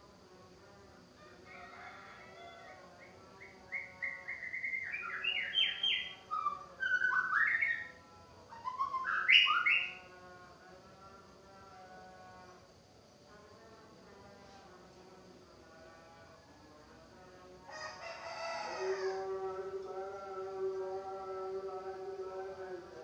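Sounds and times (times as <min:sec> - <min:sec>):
bird singing whistled notes: 0:03.7 - 0:10.0.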